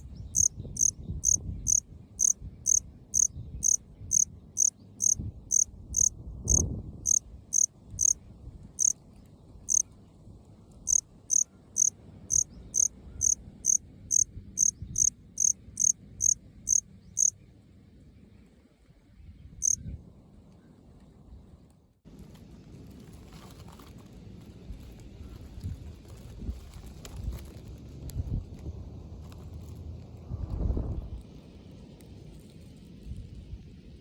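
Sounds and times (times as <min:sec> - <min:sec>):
cricket chirping: 0:00.0 - 0:08.2, 0:09.6 - 0:09.8, 0:10.9 - 0:17.4.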